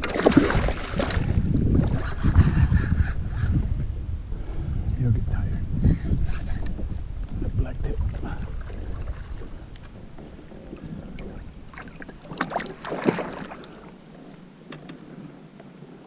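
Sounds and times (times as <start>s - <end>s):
water splashing against a kayak: 0.0s - 3.0s, 6.1s - 16.0s
wind on the microphone: 0.0s - 16.0s.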